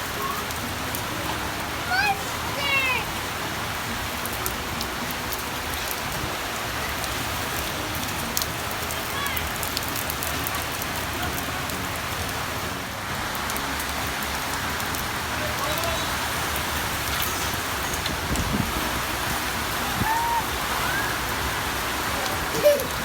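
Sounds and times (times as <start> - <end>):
heavy rain falling: 0.0 - 23.0
raindrops ticking on surfaces: 0.0 - 23.0.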